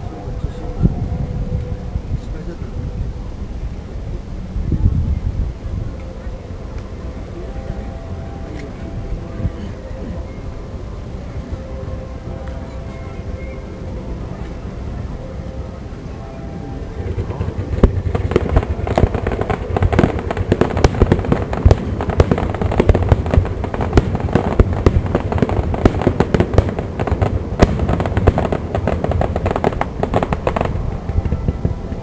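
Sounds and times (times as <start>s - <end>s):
fireworks bursting and crackling: 16.8s - 32.0s.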